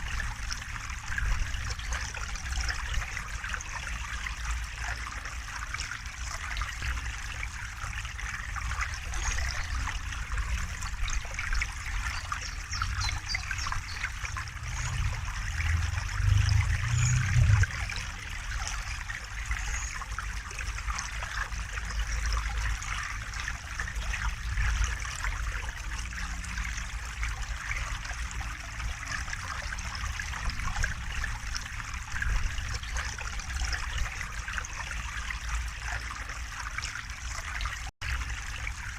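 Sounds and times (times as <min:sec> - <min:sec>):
river water trickling: 0:00.0 - 0:38.9
low rumble: 0:13.8 - 0:18.9.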